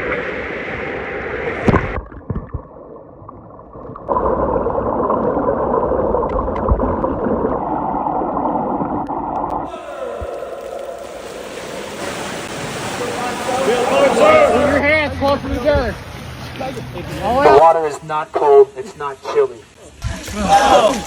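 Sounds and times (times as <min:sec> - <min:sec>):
muffled churning water underwater: 0:00.0 - 0:14.8
hiss of waves: 0:09.7 - 0:14.8.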